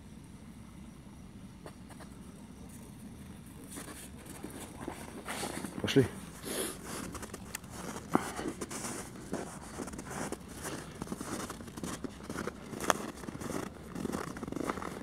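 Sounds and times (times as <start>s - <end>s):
footsteps crunching through snow: 3.6s - 15.0s.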